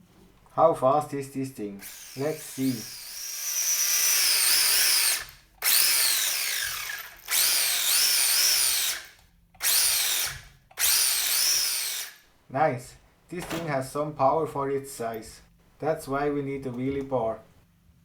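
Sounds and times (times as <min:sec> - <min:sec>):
toy truck electric motor whine: 0:01.8 - 0:12.2.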